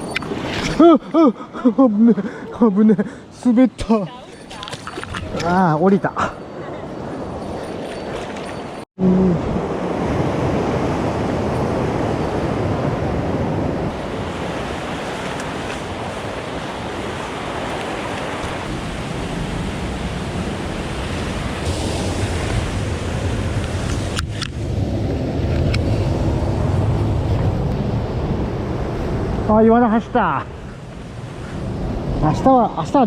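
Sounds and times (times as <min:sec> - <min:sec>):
fast water rushing in stream: 0:13.9 - 0:24.7.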